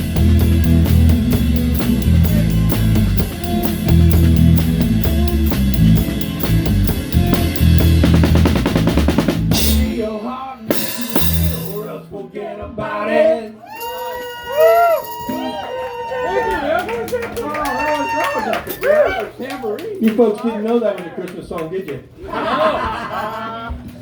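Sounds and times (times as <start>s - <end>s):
live rock band playing: 0.0s - 11.9s
fast drum fill: 0.0s - 12.0s
held bass note: 0.0s - 12.0s.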